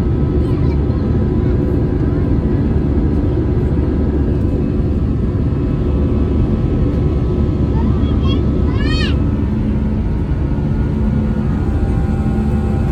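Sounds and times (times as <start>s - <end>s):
airplane cabin engine rumble: 0.0s - 12.9s
faint steady whine: 4.0s - 12.9s.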